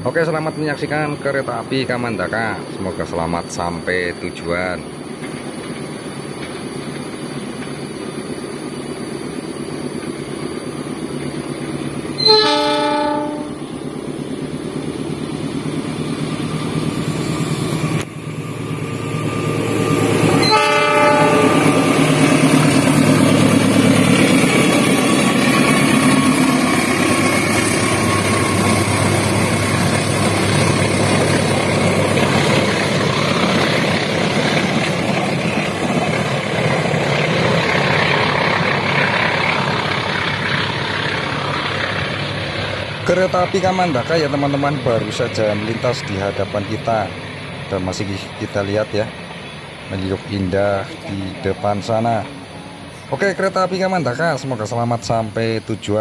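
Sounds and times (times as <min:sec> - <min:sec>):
diesel locomotive engine rumbling: 0:00.0 - 0:56.0
train wheels on rails: 0:00.2 - 0:56.0
train horn blasts: 0:12.2 - 0:13.6, 0:20.4 - 0:21.9.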